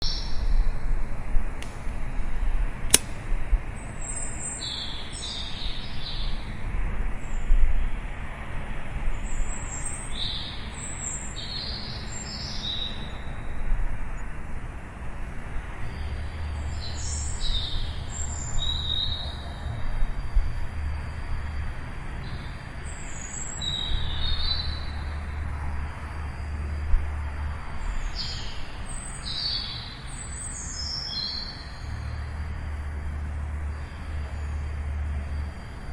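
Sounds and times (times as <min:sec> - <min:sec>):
small songbirds chirping: 0:00.0 - 0:00.8, 0:03.7 - 0:06.6, 0:09.1 - 0:14.4, 0:15.2 - 0:35.9
low rumble of city traffic: 0:00.0 - 0:35.9
sharp click: 0:02.9 - 0:03.2.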